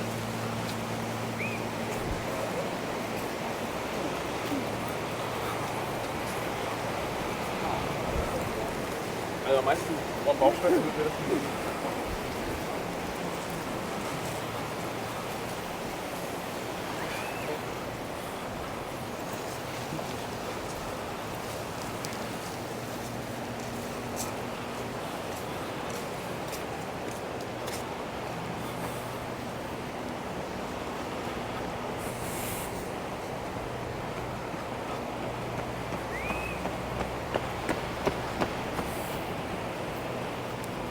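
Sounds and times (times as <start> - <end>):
sea surf on a beach: 0.0 - 40.9.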